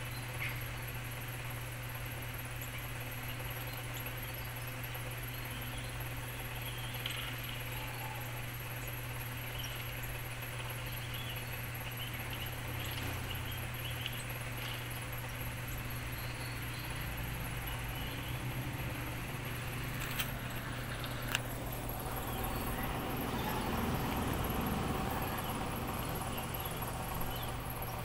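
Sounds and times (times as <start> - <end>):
steady low hum: 0.0 - 28.0
birds chirping through phone speaker: 2.5 - 19.4.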